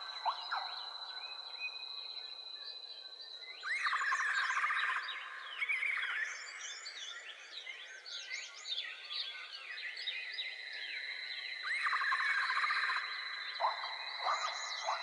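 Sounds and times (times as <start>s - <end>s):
wild birds chirping: 0.0s - 15.0s.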